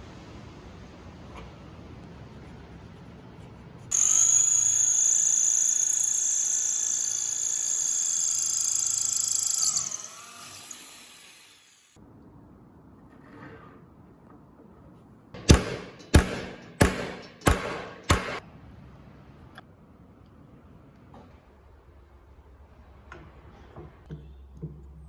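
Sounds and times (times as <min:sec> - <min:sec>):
electric power tool whining: 0:03.9 - 0:11.9.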